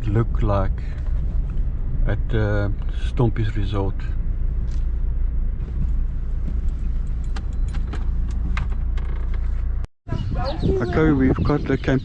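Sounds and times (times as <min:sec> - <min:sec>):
car engine and tyres rumbling: 0:00.0 - 0:12.0
light clinks and rattles: 0:05.8 - 0:09.6.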